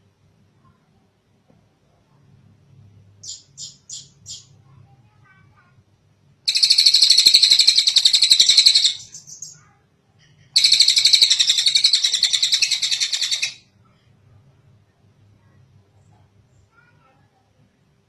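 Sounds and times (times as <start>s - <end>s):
songbird high-pitched trills: 3.2s - 4.5s, 6.5s - 9.7s, 10.6s - 13.6s.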